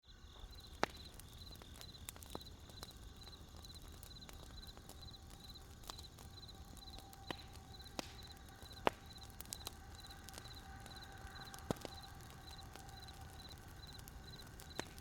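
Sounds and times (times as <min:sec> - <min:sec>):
campfire crackling and popping: 0:00.1 - 0:15.0
cricket chirping: 0:00.1 - 0:15.0.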